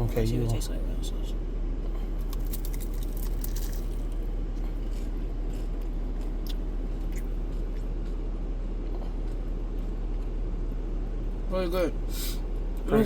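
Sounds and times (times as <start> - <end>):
steady low hum: 0.0 - 13.0
faint crunches: 1.9 - 7.9
person chewing crispy food: 2.0 - 8.2.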